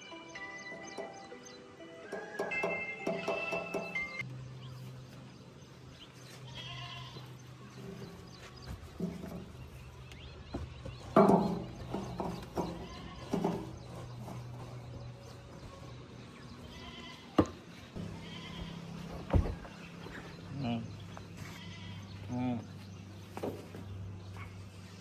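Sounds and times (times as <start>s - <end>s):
farm animals bleating: 6.2s - 10.0s, 11.1s - 23.1s.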